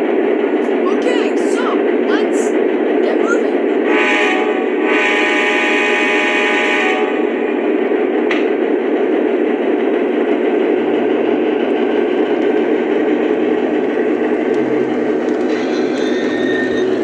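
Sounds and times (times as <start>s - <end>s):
model train rumbling on track: 0.0s - 17.0s.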